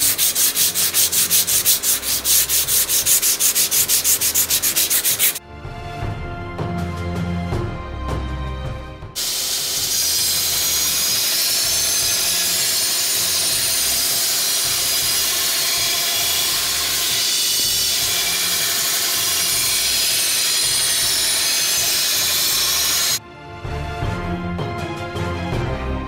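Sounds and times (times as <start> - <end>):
belt grinder grinding steel blade: 0.0 - 5.4, 9.2 - 23.2.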